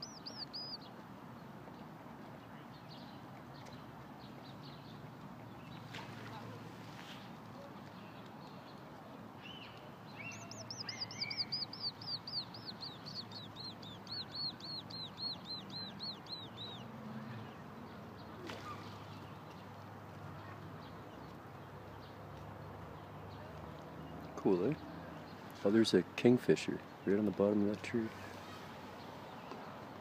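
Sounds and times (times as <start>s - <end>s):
bird chirping: 0.0s - 0.9s, 9.4s - 16.9s.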